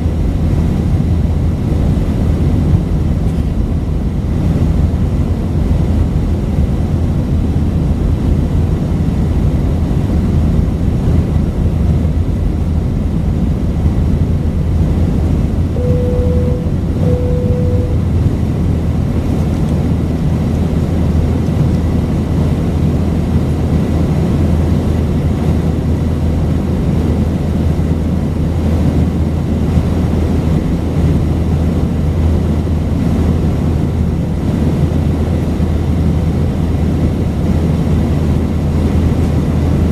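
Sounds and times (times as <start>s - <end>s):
aircraft engine drone in cabin: 0.0s - 39.9s
two-tone cabin chime: 15.8s - 18.4s.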